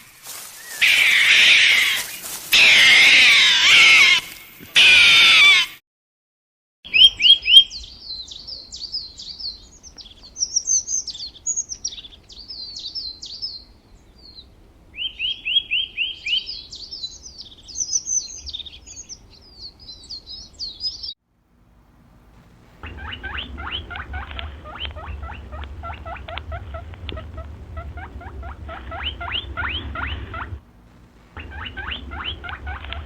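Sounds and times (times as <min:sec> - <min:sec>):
songbird twittering and trilling: 0:06.9 - 0:21.2, 0:22.6 - 0:33.0.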